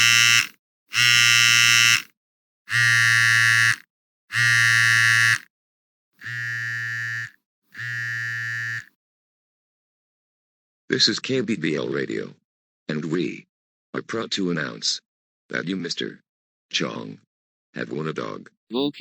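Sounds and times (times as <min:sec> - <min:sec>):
telephone buzzing rings: 0:00.0 - 0:05.5, 0:06.2 - 0:08.9.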